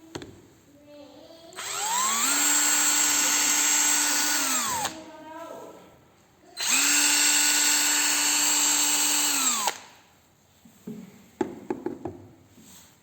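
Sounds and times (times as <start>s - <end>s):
cordless drill whining: 1.6s - 5.0s, 6.6s - 10.0s.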